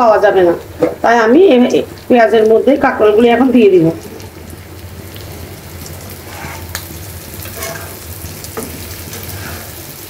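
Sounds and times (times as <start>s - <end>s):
vegetables sizzling in oil: 0.0s - 10.0s
spatula scraping pan: 6.1s - 10.0s.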